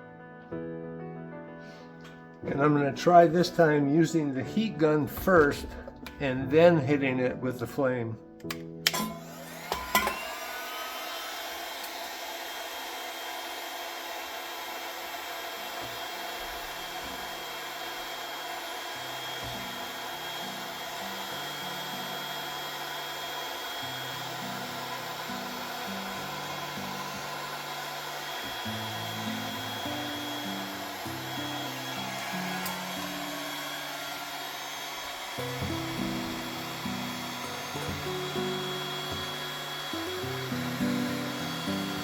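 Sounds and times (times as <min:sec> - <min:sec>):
heat gun blowing hot air: 0:08.4 - 0:42.0.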